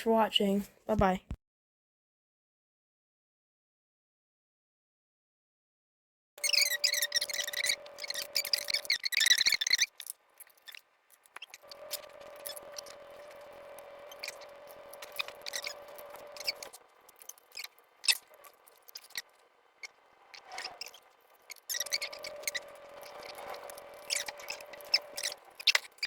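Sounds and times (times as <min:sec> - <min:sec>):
small electric motor whining: 0:06.4 - 0:26.0
light clicks and scrapes: 0:20.2 - 0:26.0.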